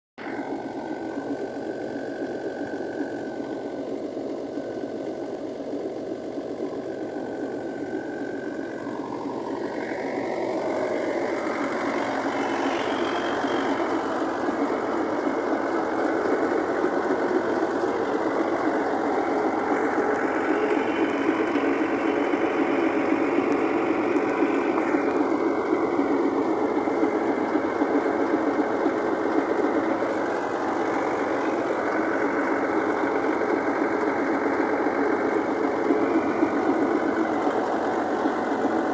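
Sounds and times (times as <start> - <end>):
tractor diesel engine chugging: 0.2 - 38.9.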